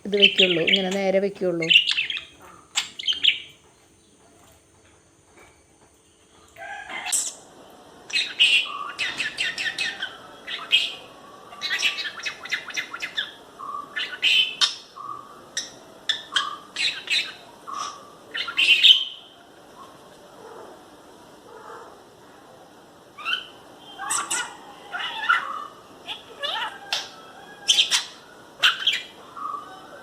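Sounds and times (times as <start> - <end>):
lovebird chattering: 0.0 - 3.4.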